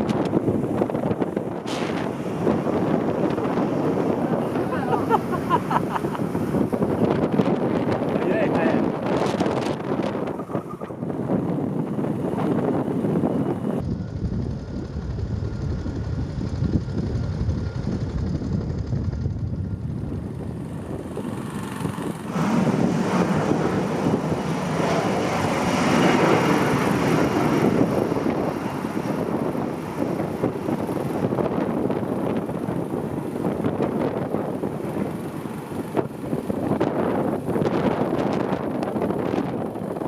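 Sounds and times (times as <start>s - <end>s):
aircraft engine noise: 0.0s - 40.0s
wind buffeting microphone: 0.0s - 40.0s.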